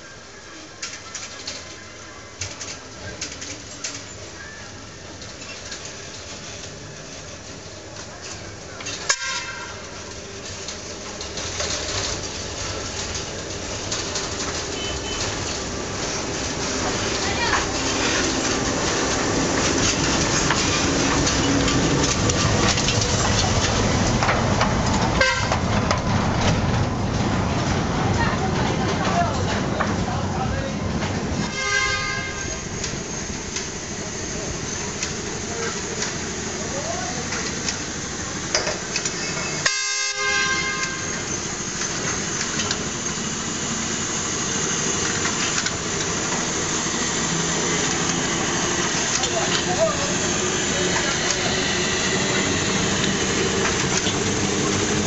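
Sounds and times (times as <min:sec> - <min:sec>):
train rumbling and rattling: 0:00.0 - 0:55.0
wheel and rail clicks: 0:00.8 - 0:31.6, 0:32.2 - 0:55.0
train horn toot: 0:09.1 - 0:09.8, 0:25.2 - 0:25.6, 0:31.5 - 0:32.6, 0:39.6 - 0:41.2.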